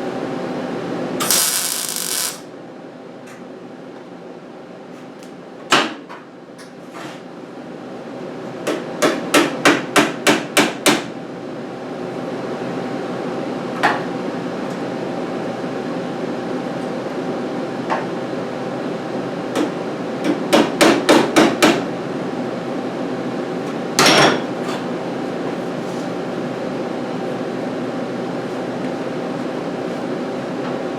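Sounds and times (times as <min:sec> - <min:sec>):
steady hum: 0:01.1 - 0:02.6
hammer on sheet metal: 0:09.0 - 0:11.1.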